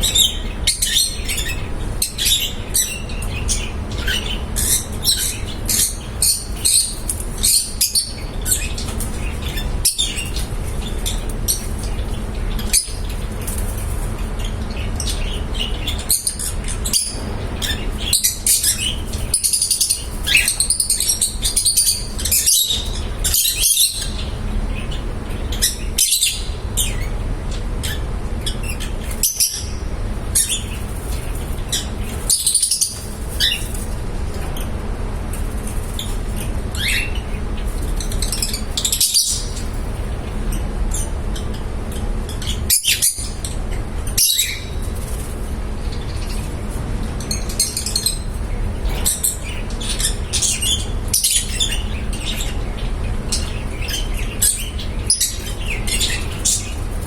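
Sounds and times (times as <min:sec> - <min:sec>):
lovebirds chirping: 0:00.0 - 0:34.6, 0:35.3 - 0:46.6, 0:47.2 - 0:57.0
steady low hum: 0:00.0 - 0:57.0.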